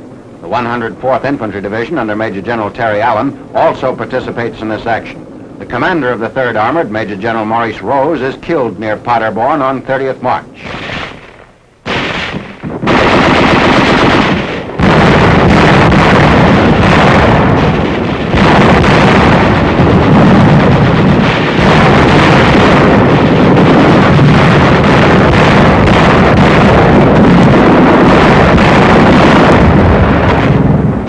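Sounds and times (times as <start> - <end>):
heavy rumble: 10.4 - 31.0
continuous gunfire: 10.6 - 31.0.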